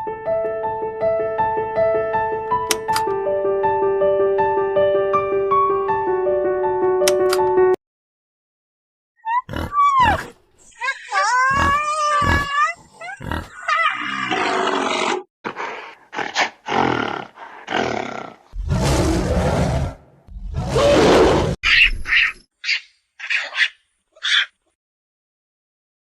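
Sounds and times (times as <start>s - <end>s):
wavering animal cries: 9.2s - 15.2s, 21.7s - 24.6s
animal roars and grunts: 9.3s - 21.6s.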